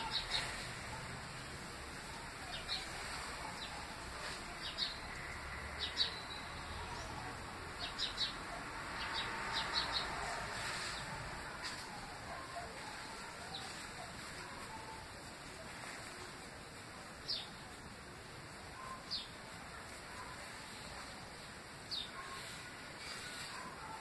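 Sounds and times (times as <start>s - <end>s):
small birds chirping: 0.0s - 14.7s, 17.2s - 17.8s
steady hiss: 0.0s - 24.0s.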